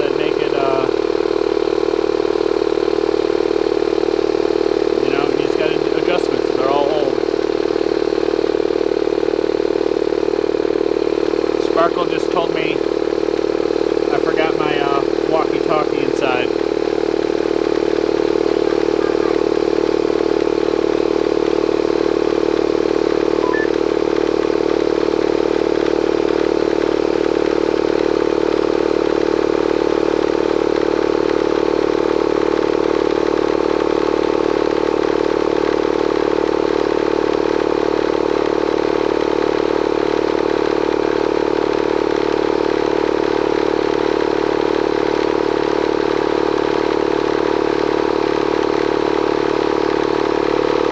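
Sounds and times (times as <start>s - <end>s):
air compressor running: 0.0s - 50.9s.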